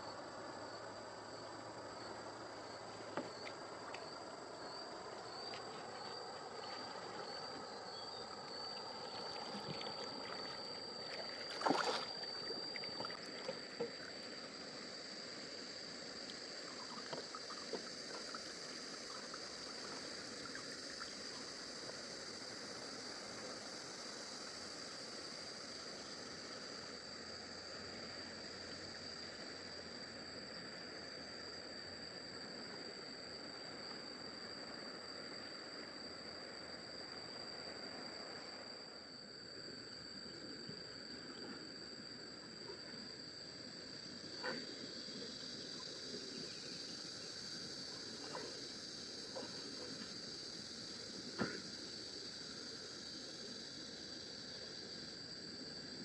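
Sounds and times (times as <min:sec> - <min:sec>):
high-pitched insect drone: 0:00.0 - 0:56.0
water lapping and trickling: 0:02.4 - 0:23.8.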